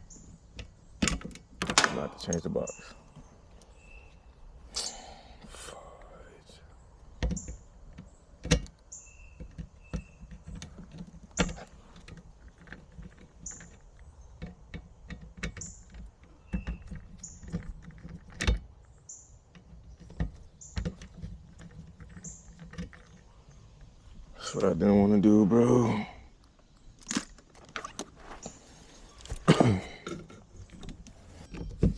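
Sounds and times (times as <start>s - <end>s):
tools and metal parts clicking: 7.2s - 23.3s.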